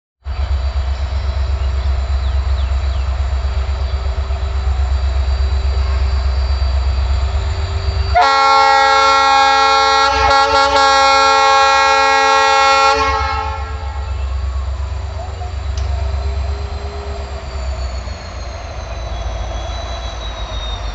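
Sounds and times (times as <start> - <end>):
train rumbling: 0.2 - 20.9
train horn: 8.1 - 14.4.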